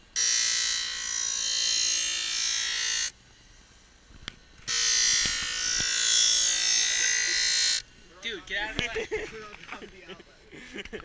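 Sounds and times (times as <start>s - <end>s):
grinding wheel grinding steel: 0.0s - 8.4s.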